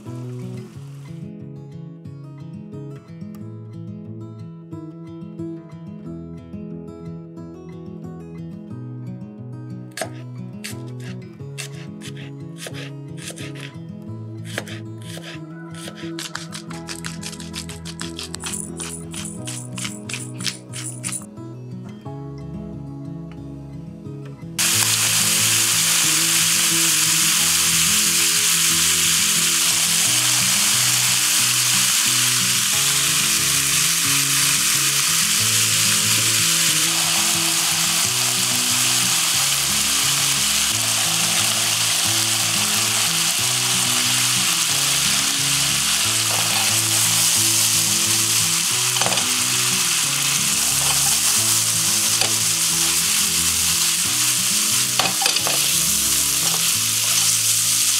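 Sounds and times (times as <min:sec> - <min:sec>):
meat sizzling in a frying pan: 0:14.7 - 0:21.1, 0:24.6 - 0:57.9.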